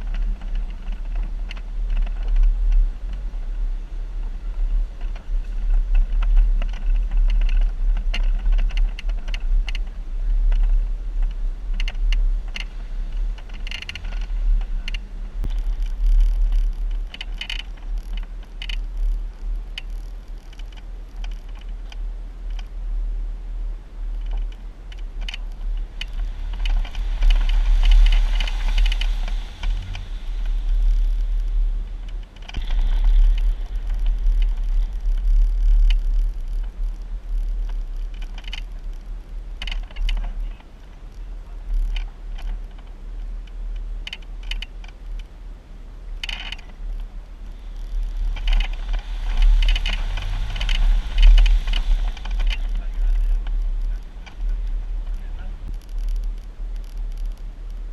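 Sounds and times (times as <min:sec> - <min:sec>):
engine and drivetrain rumble: 0:00.0 - 0:57.9.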